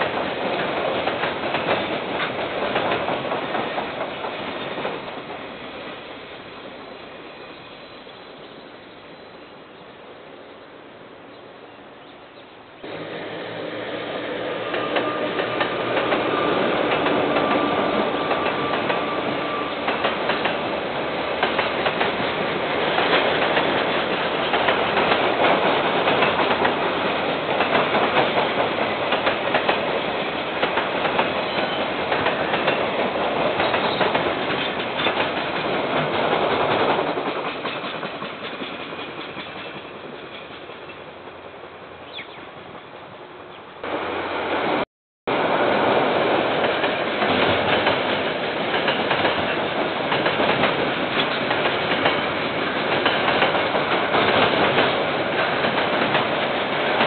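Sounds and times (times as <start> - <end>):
train wheels clattering over rail joints: 0.0 - 5.5, 14.5 - 40.9, 46.1 - 57.0.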